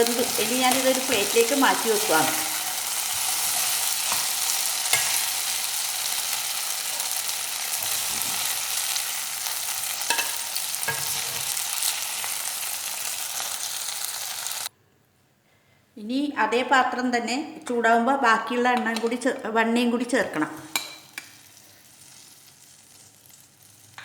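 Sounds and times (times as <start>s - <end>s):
chicken sizzling in a pan: 0.0s - 14.7s, 20.7s - 24.0s.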